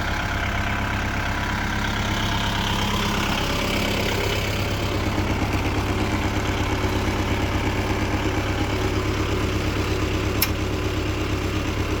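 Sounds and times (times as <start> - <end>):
tractor diesel engine running: 0.0 - 12.0
sharp click: 10.4 - 10.6.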